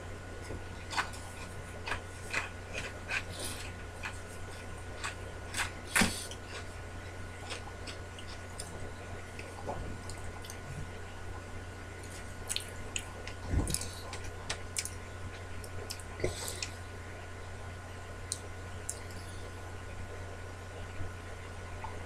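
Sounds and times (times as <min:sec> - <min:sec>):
low electrical hum: 0:00.0 - 0:22.0
crunchy snack chewing: 0:00.8 - 0:10.6.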